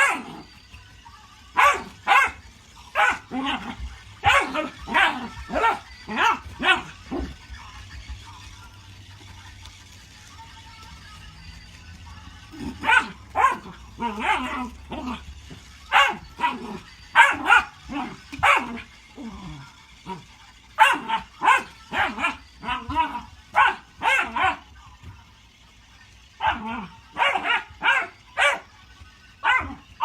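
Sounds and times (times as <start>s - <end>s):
dog barking: 0.0s - 0.4s, 1.6s - 2.4s, 3.0s - 7.3s, 12.8s - 14.7s, 15.9s - 17.7s, 18.3s - 18.8s, 20.8s - 24.6s, 26.4s - 28.7s, 29.4s - 29.8s.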